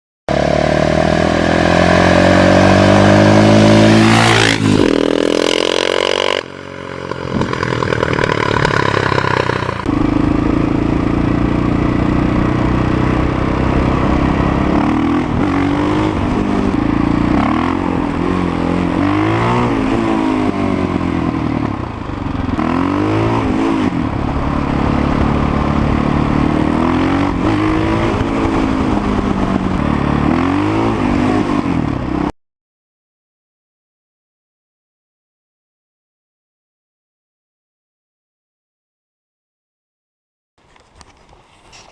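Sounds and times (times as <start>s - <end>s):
engine revving: 0.3s - 32.3s
motorcycle passing by: 0.3s - 32.3s.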